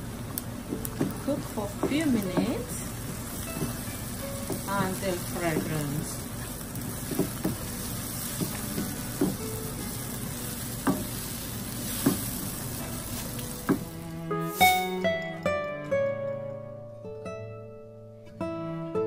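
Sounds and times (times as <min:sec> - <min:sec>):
food sizzling in a frying pan: 0:00.0 - 0:15.0
wooden spoon knocking on pan: 0:00.7 - 0:12.7, 0:13.6 - 0:14.0
plucked-string music: 0:03.4 - 0:05.8, 0:12.8 - 0:19.0.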